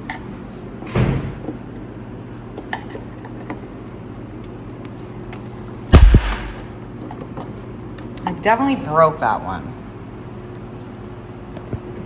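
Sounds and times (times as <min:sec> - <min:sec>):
low hum: 0:05.9 - 0:06.7.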